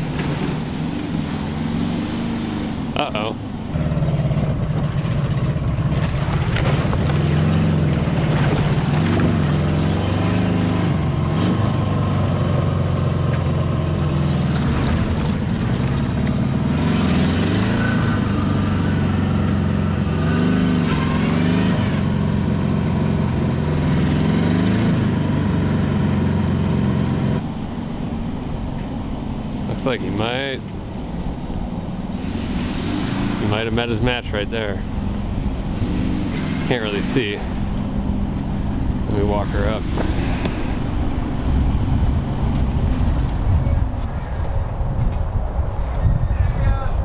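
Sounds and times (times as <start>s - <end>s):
car engine revving: 0.0s - 45.8s.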